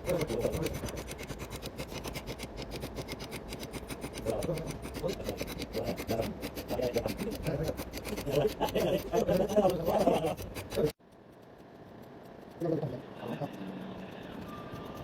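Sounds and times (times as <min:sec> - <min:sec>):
tool rasping against radiator: 0:00.0 - 0:11.0.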